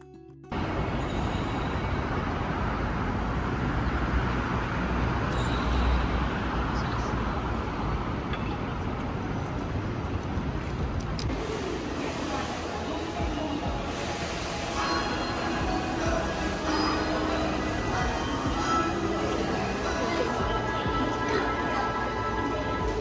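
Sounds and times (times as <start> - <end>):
music: 0.0 - 2.2, 11.3 - 23.0
railway station noise with deep rumble: 0.5 - 23.0.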